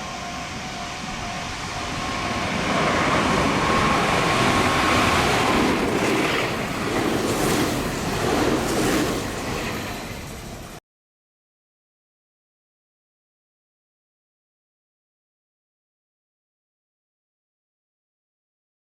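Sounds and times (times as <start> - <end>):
electric train passing at speed: 0.0 - 10.8
train whine: 0.0 - 10.8.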